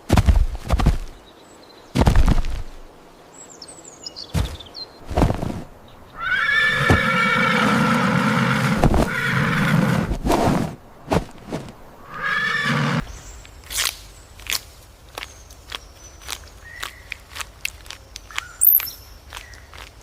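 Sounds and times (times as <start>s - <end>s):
horse neighing: 6.2s - 10.1s, 12.0s - 13.0s.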